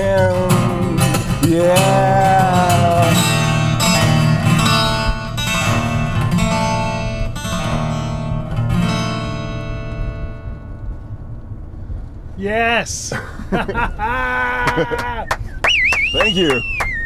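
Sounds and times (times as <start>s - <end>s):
acoustic guitar strumming chords: 0.0s - 10.8s.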